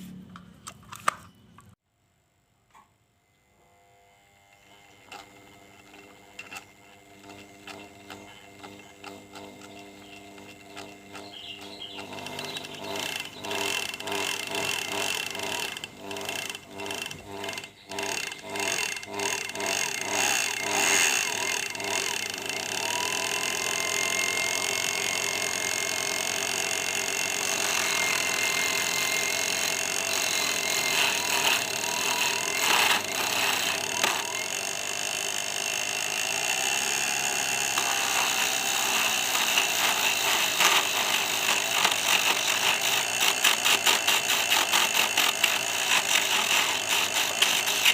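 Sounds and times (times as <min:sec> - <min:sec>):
mini lathe running: 0:03.5 - 0:47.9
regular ticking: 0:06.5 - 0:47.9
high thin cutting tones: 0:26.9 - 0:34.8.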